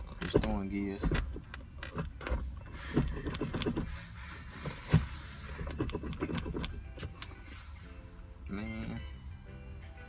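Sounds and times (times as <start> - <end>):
clicks and knocks of handling: 0.0 - 3.8.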